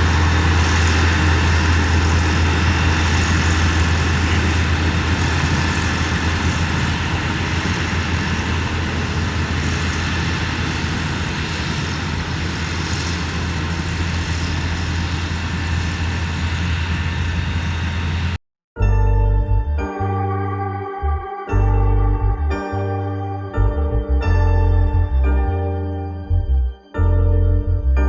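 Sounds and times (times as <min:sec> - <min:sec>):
heavy diesel engine droning: 0:00.0 - 0:18.4.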